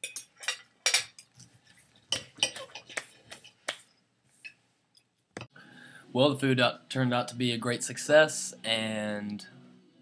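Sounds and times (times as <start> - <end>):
cutlery clinking on plate: 0.0 - 1.4, 2.1 - 3.6.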